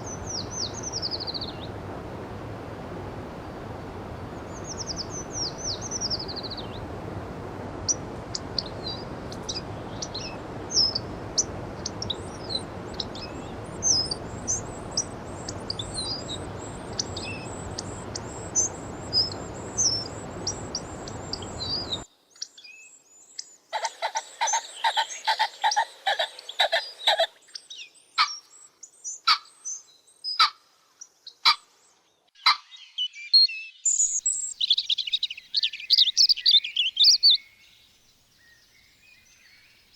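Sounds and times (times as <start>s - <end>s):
birds chirping: 0.0s - 22.1s, 32.4s - 39.9s
steady background hiss: 0.0s - 28.8s.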